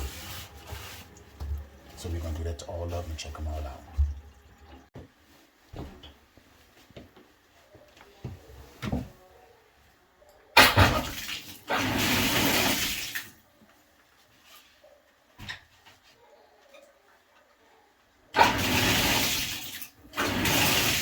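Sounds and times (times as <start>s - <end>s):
water running into sink: 0.0s - 4.9s, 10.6s - 13.4s, 18.4s - 21.0s.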